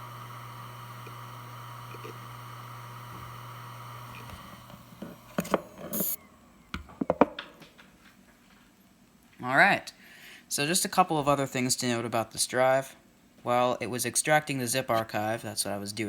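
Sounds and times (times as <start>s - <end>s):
hard drive spinning hum: 0.0s - 7.1s.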